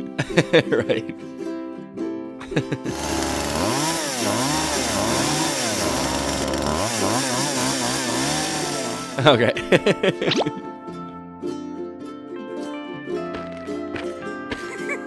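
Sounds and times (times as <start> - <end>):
small engine buzzing and revving: 2.9 - 9.3
cartoon music: 9.2 - 11.0.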